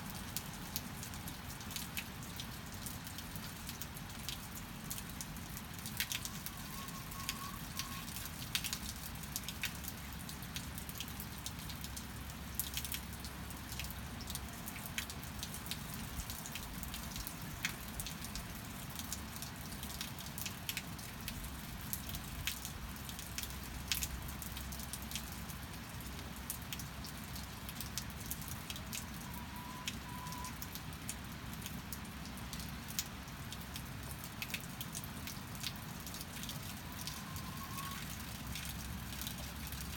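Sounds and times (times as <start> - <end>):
steady rain: 0.0 - 39.9
sharp drips ticking: 0.1 - 39.9.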